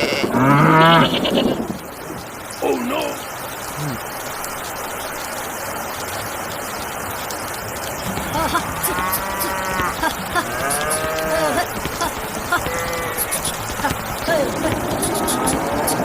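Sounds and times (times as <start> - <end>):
farm animals calling: 0.0 - 1.6, 8.0 - 16.0
steady background hiss: 0.0 - 16.0.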